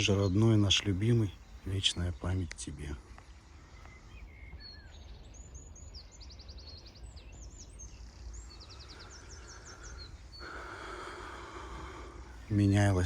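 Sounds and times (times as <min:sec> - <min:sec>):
songbird singing: 0:00.0 - 0:13.0
steady hiss: 0:07.6 - 0:13.0.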